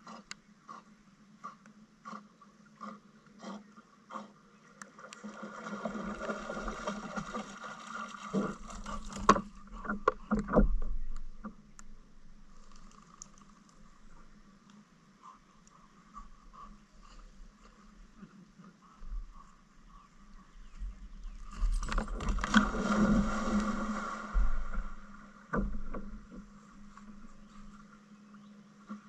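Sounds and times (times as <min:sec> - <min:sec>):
water swishing: 0:04.9 - 0:10.5, 0:19.7 - 0:28.0
paddle clicks: 0:21.5 - 0:27.8.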